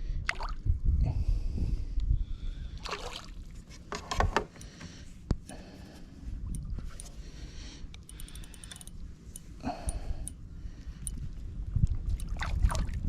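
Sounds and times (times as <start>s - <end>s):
water splashing around kayak: 2.8s - 3.8s, 11.8s - 13.0s.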